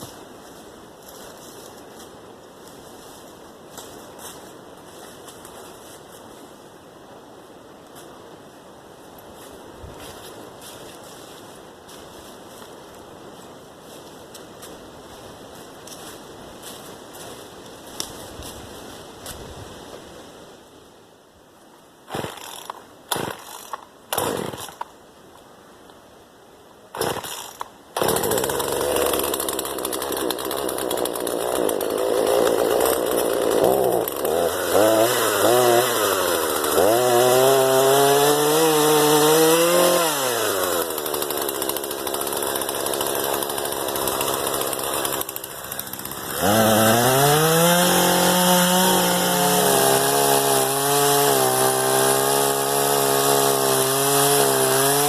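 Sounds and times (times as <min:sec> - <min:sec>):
chainsaw revving: 0:22.1 - 0:24.9, 0:27.0 - 0:55.0.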